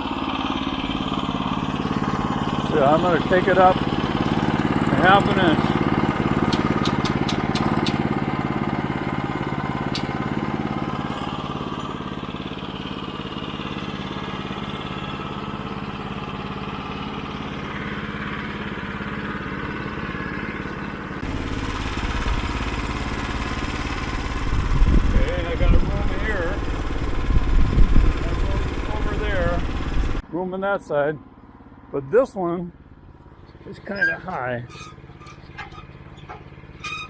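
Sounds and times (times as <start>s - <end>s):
gasoline engine running: 0.0s - 30.3s, 30.9s - 37.0s
sharp clicks: 6.4s - 8.1s
deep rumble: 21.2s - 30.2s.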